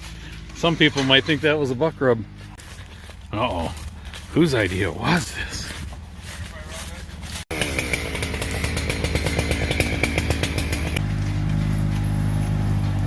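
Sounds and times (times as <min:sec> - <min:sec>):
low steady engine hum: 0:00.0 - 0:13.0
small gasoline engine whining: 0:07.0 - 0:13.0.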